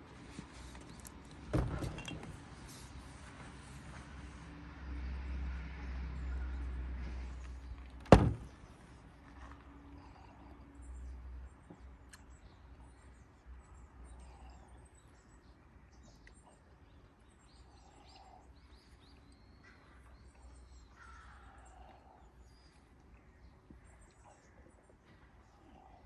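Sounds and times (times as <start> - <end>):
bird calls and chirps: 10.0 - 26.0.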